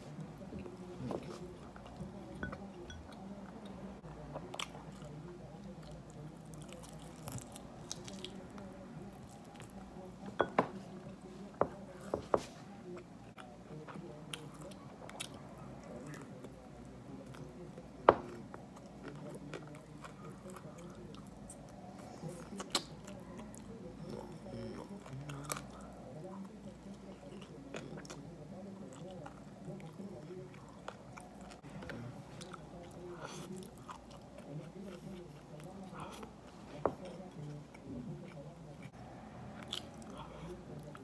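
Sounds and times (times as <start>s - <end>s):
person chewing: 39.6s - 41.0s.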